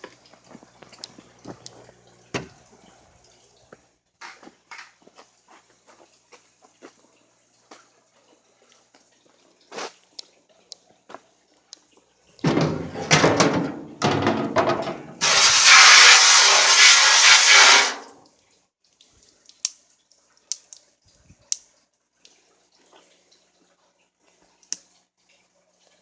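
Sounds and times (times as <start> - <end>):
water pouring: 12.4 - 18.2
water splashing: 15.0 - 18.2.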